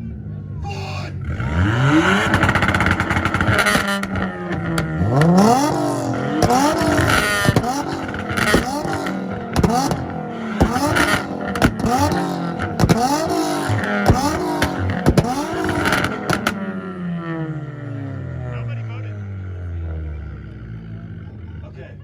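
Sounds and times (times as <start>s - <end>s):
car engine revving: 0.0s - 22.0s
exhaust pops: 1.4s - 16.8s.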